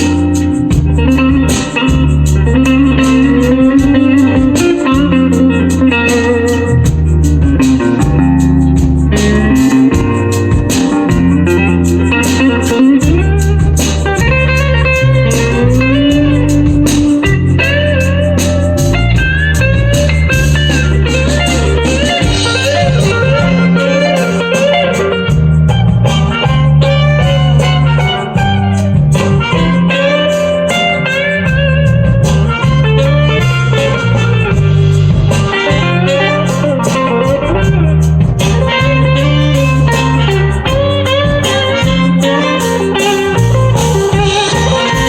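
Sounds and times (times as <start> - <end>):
bass line: 0.0 - 45.0
lead electric guitar: 0.0 - 45.0
steady drum beat: 0.0 - 45.0.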